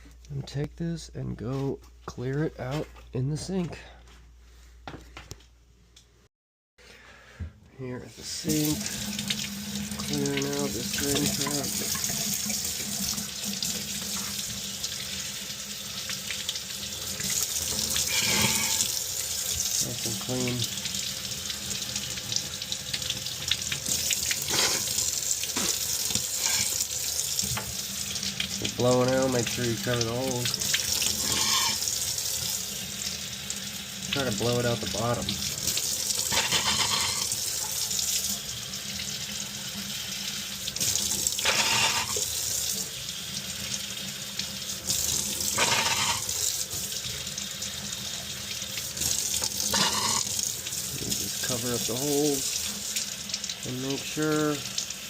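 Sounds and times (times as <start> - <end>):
water running from tap: 8.2 - 55.0
water splashing in drain trap: 8.4 - 39.9, 40.6 - 43.0, 44.4 - 55.0.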